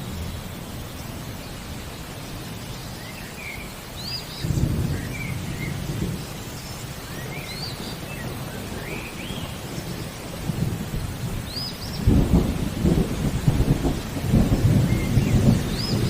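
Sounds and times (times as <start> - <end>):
bird chirping: 0.0 - 10.1
steady rain: 0.0 - 16.0
thunder rumble: 4.4 - 16.0.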